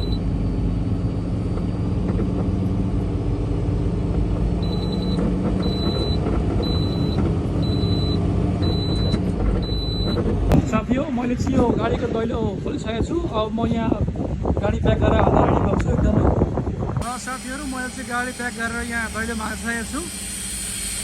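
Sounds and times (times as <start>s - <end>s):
backup alarm beeping: 0.0s - 0.3s, 4.6s - 10.3s
diesel truck engine running: 0.0s - 11.7s, 16.9s - 21.0s.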